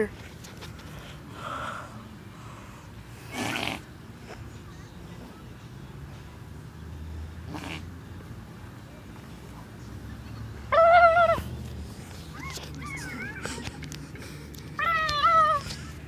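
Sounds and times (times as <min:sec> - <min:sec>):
faint wavering cries: 0:10.7 - 0:11.5, 0:12.2 - 0:13.8, 0:14.8 - 0:16.0.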